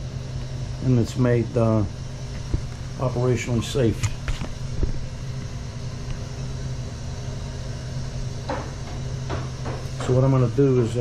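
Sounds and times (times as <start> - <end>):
gas burner firing: 0.0 - 11.0.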